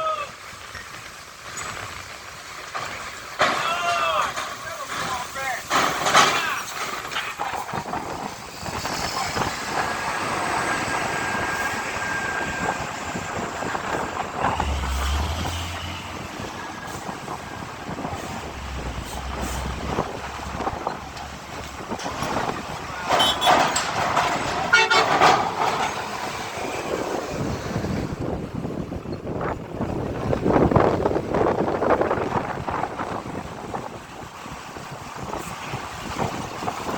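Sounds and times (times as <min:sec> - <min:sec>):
heavy trucks running: 0:00.0 - 0:36.9
truck horns tooting: 0:10.4 - 0:21.1, 0:22.8 - 0:25.8.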